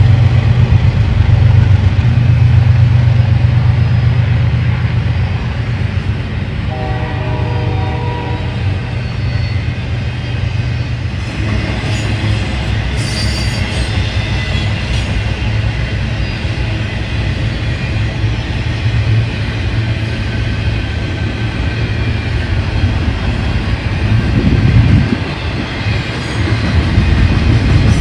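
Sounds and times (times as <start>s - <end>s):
diesel train rumble: 0.0s - 28.0s
rail and wheel noise: 0.0s - 28.0s
locomotive horn: 6.7s - 8.7s
high wheel squeals: 8.8s - 11.0s, 11.8s - 14.8s.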